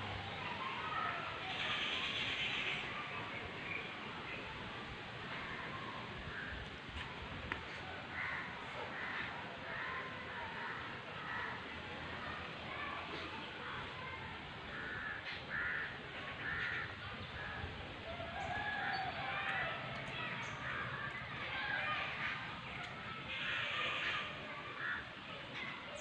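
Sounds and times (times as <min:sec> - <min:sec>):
low outdoor background: 0:00.0 - 0:26.0
birds calling: 0:14.0 - 0:26.0.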